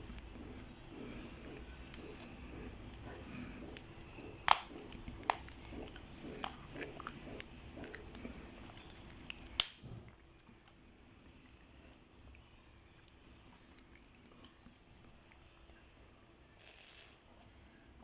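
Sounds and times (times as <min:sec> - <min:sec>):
chewing with wet mouth sounds: 0:00.0 - 0:15.5.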